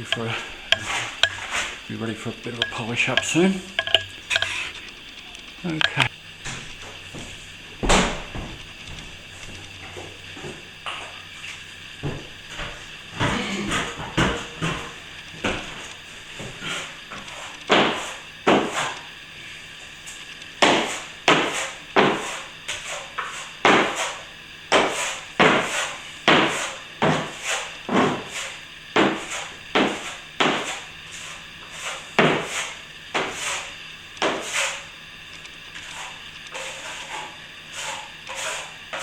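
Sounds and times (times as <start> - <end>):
trowel scraping plaster: 0.2 - 1.8, 20.7 - 34.9, 35.8 - 39.0.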